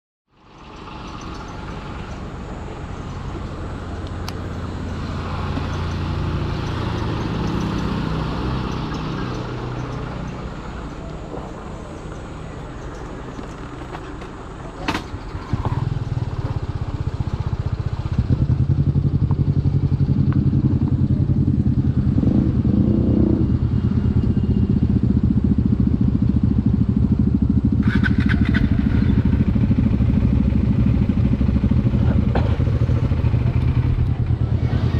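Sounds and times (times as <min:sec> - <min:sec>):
motorcycle engine running: 0:15.1 - 0:34.9.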